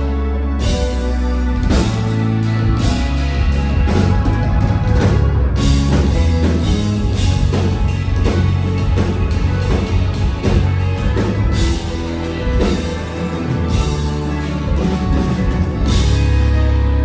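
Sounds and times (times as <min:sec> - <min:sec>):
rock band instrumental: 0:00.0 - 0:17.0.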